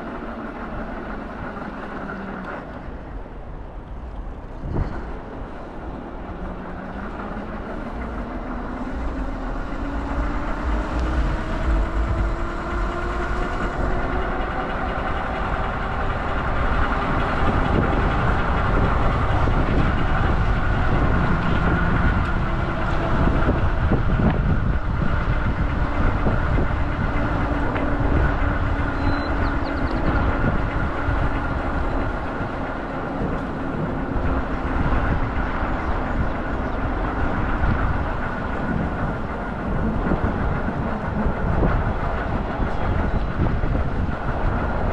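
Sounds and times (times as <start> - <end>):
vehicle engine running: 0.0 - 44.9.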